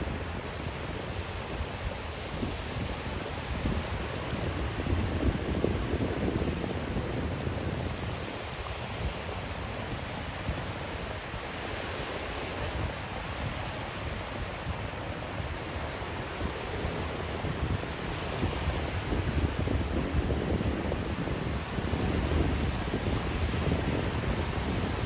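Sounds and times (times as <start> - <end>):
rushing white noise with rumble: 0.0 - 25.0.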